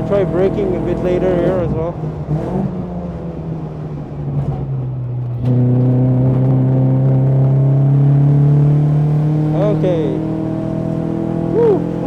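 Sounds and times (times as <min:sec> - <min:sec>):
race car engine accelerating: 0:05.4 - 0:12.0.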